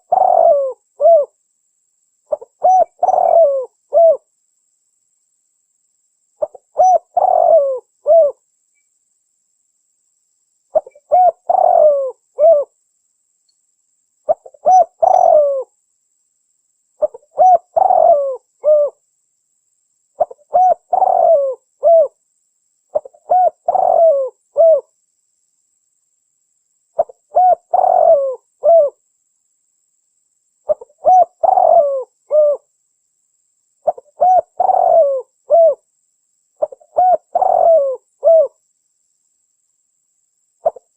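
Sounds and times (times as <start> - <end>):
dove cooing: 0.0 - 1.4, 2.3 - 4.3, 6.4 - 8.4, 10.7 - 12.7, 14.3 - 15.7, 17.0 - 19.0, 20.2 - 22.2, 22.9 - 24.9, 27.0 - 29.0, 30.7 - 32.7, 33.8 - 35.8, 36.6 - 38.6, 40.6 - 40.9.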